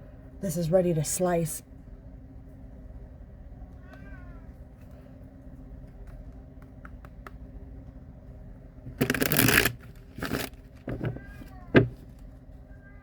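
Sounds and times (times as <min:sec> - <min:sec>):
cards being shuffled: 0:09.0 - 0:11.2.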